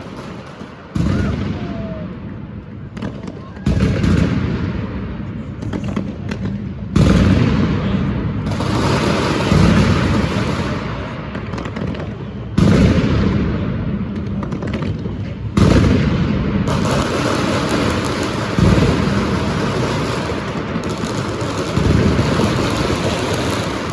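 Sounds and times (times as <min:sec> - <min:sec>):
fireworks crackling hiss: 0:00.0 - 0:01.9, 0:08.4 - 0:12.9, 0:16.7 - 0:23.9
fireworks booming with echo: 0:00.0 - 0:23.9.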